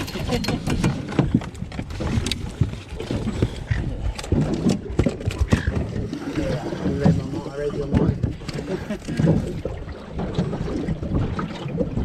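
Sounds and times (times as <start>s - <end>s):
fish flapping and slapping: 0.0s - 6.5s.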